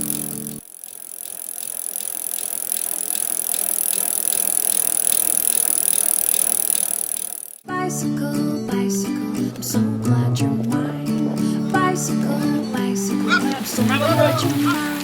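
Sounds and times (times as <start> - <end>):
bicycle freewheel clicking: 0.0 - 7.6.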